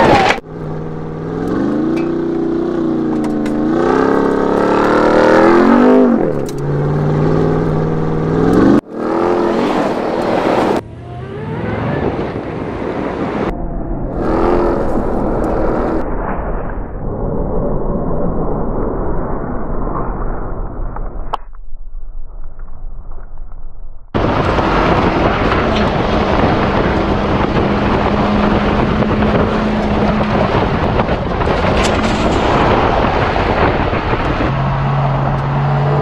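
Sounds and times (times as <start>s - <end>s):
truck engine revving: 0.0s - 16.0s, 24.2s - 36.0s
vehicle driving: 0.0s - 18.5s, 24.0s - 36.0s.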